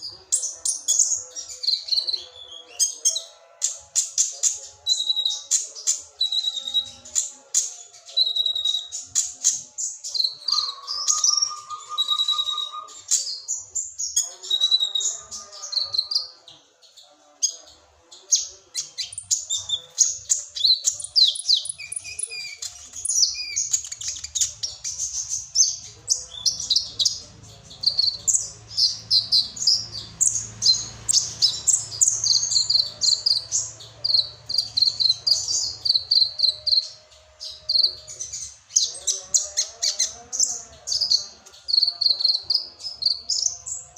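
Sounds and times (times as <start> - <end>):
bird singing high chirps and trills: 0.0 - 43.9.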